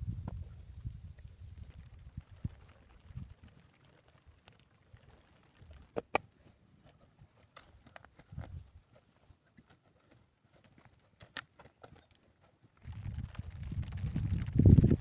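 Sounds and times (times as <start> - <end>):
light clicks and taps: 6.8 - 12.9.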